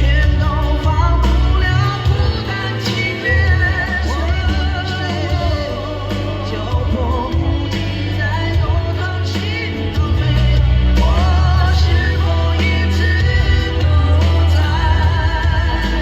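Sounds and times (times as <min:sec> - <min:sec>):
heavy bass line: 0:00.0 - 0:16.0
man singing long notes: 0:00.0 - 0:16.0
pop-rock band playing: 0:00.0 - 0:16.0.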